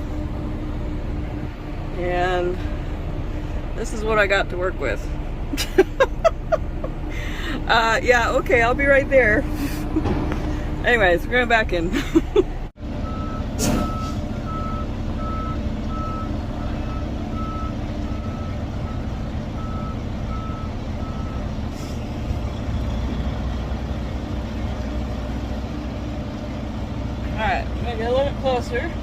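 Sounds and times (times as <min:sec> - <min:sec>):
diesel truck engine running: 0:00.0 - 0:29.0
backup alarm beeping: 0:13.0 - 0:21.5.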